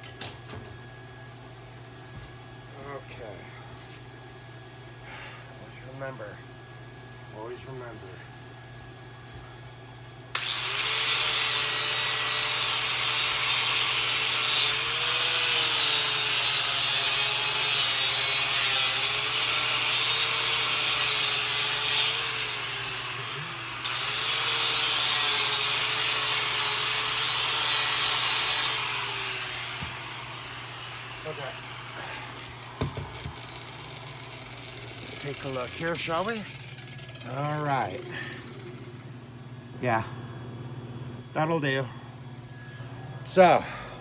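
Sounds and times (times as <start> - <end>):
angle grinder cutting steel: 10.4 - 39.0.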